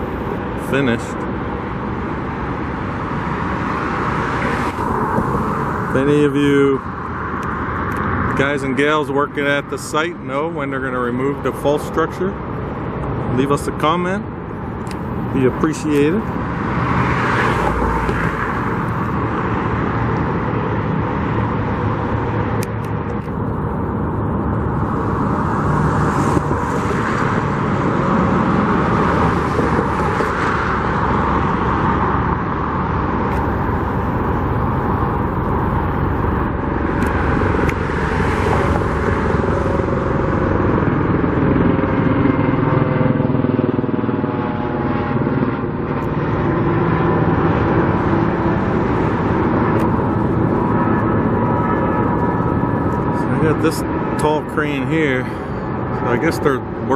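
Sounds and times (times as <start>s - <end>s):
road traffic rumbling: 0.0s - 56.9s
vehicle engine passing: 15.0s - 56.9s.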